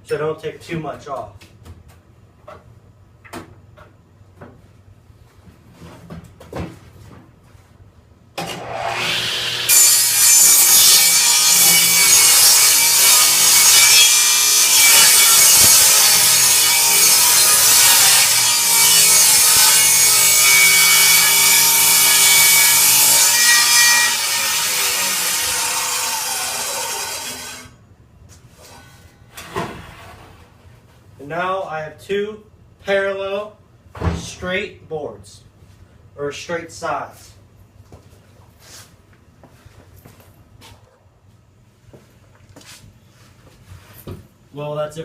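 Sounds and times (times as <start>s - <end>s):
table saw ripping a board: 8.4s - 27.7s.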